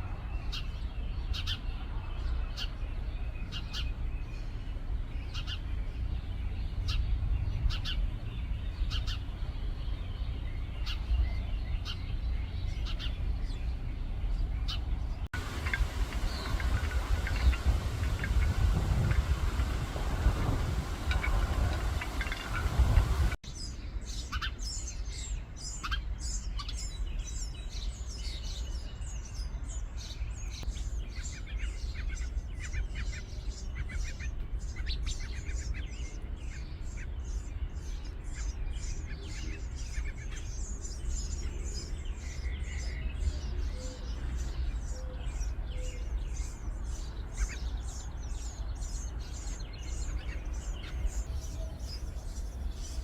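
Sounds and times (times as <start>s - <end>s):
sparrows chirping: 0.0s - 53.0s
steady low rumble: 14.9s - 23.4s.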